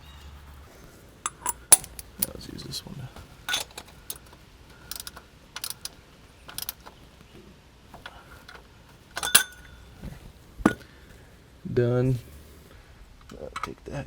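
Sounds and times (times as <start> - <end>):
metal tools clinking: 1.2 - 7.0, 8.0 - 10.9.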